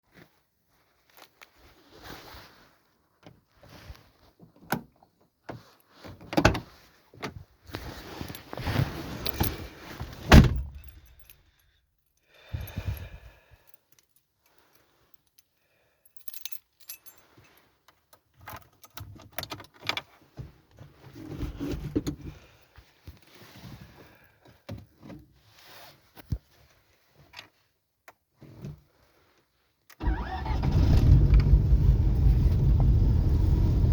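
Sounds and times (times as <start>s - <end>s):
car keys jangling: 10.4s - 11.4s
clicks and handling noises: 16.2s - 22.4s.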